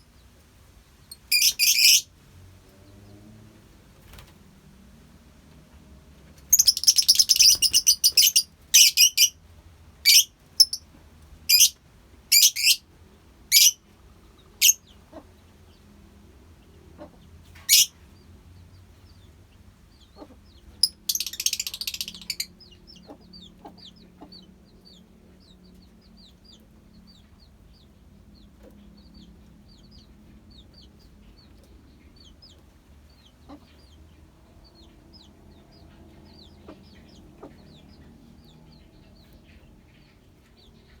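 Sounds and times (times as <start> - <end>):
lovebirds screeching: 1.2 - 2.1, 6.5 - 9.4, 10.1 - 10.8, 11.5 - 12.8, 13.5 - 13.8, 17.7 - 17.9, 20.3 - 22.6.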